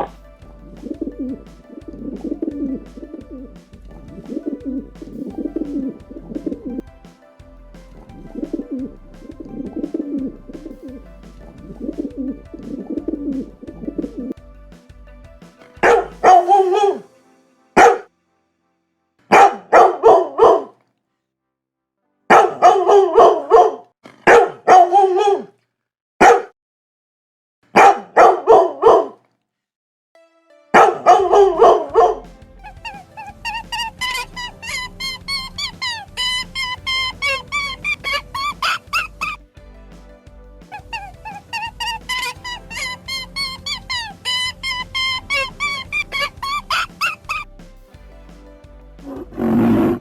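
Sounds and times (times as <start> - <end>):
dog barking: 22.3 - 25.4, 26.2 - 26.5, 27.8 - 29.1.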